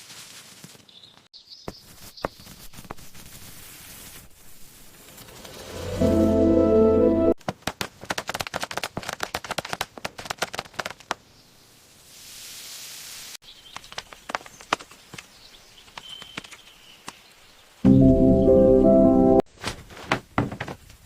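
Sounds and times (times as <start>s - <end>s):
hiss: 11.9s - 13.4s.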